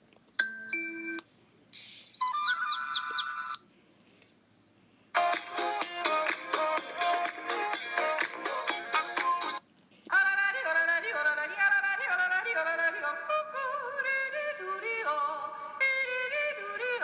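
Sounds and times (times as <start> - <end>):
rhythmic phone ringtone: 1.8 - 3.6
sliding melodic ringtone: 1.8 - 3.6.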